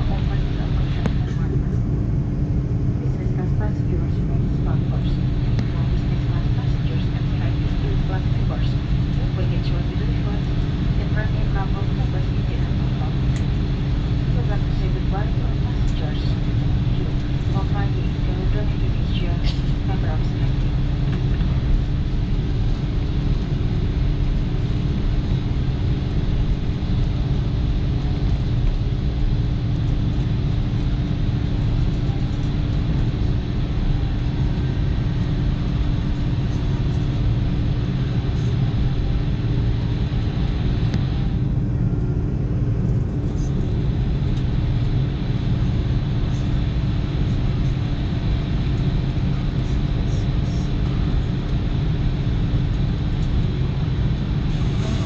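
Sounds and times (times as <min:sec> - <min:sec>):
jet engines idling: 0:00.0 - 0:55.0
low cabin hum: 0:00.0 - 0:55.0
cabin air hiss: 0:54.5 - 0:55.0.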